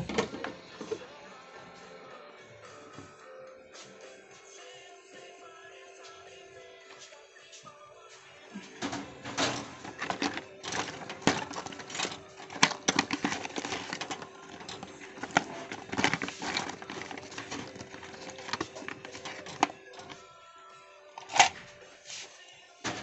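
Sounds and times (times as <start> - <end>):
small tools clicking and tapping: 8.8 - 20.2.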